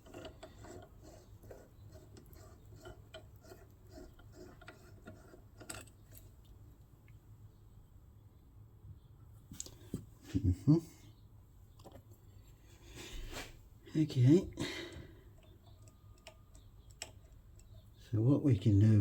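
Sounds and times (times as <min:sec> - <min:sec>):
small parts clicking and tapping: 0:00.0 - 0:06.6, 0:15.3 - 0:17.9.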